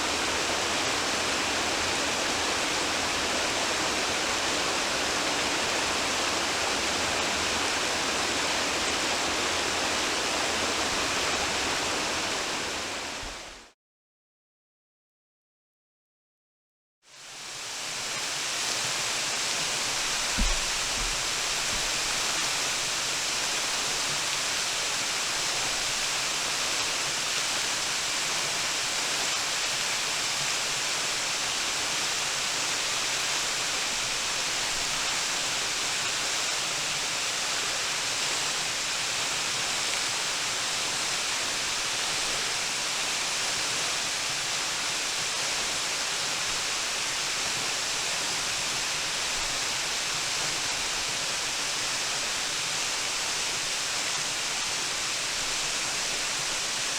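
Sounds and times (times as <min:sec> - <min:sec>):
waterfall rushing: 0:00.0 - 0:13.7, 0:17.6 - 0:56.9
low thump: 0:20.3 - 0:21.9.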